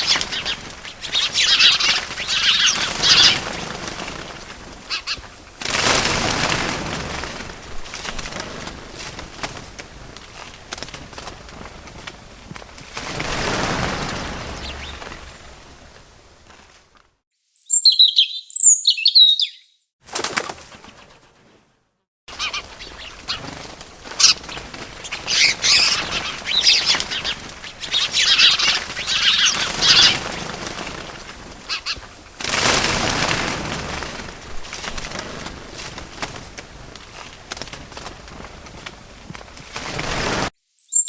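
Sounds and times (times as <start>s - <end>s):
high falling bird chirps: 0.0s - 3.7s, 13.4s - 16.0s, 17.4s - 19.9s, 22.3s - 23.6s, 24.2s - 30.6s, 40.6s - 41.0s
whoosh of wingbeats: 0.0s - 17.1s, 22.3s - 40.5s
bird wings flapping: 0.0s - 17.2s, 20.0s - 21.7s, 22.3s - 40.5s.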